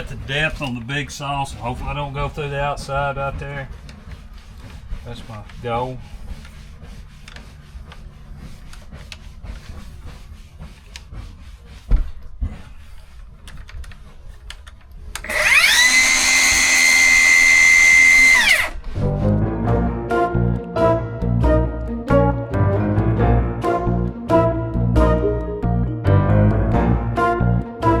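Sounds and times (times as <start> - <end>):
circular saw whining: 15.2 - 18.8
music: 18.8 - 28.0.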